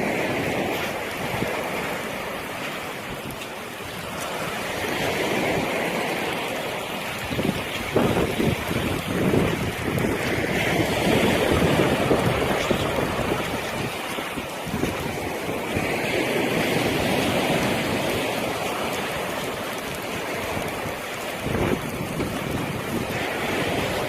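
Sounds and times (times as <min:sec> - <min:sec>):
sea waves washing onto beach: 0:00.0 - 0:24.0
wind noise on microphone: 0:00.0 - 0:24.0.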